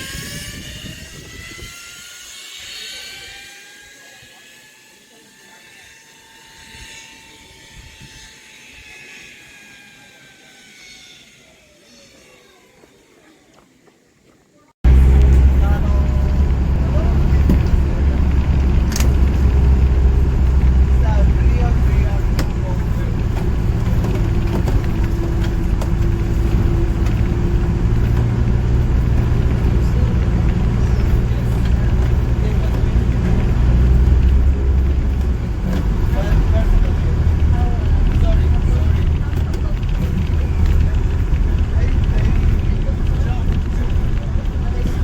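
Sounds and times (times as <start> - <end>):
zip line trolley whine: 0.0 - 13.3, 14.9 - 45.0
road noise: 14.8 - 45.0
vehicle engine rumble: 14.8 - 45.0.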